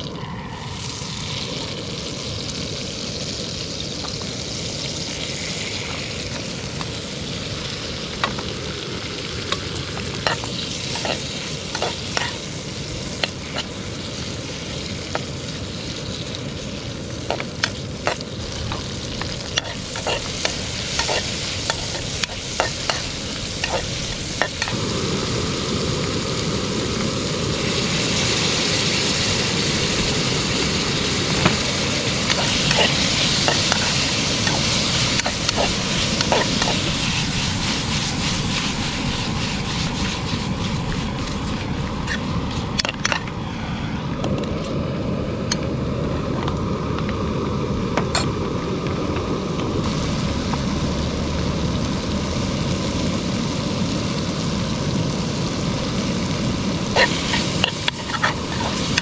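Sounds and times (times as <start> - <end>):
food sizzling in a pan: 0.0 - 43.2, 49.8 - 59.0
utensil scraping a pan: 10.2 - 12.5, 18.1 - 24.7, 32.3 - 43.3, 56.9 - 59.0.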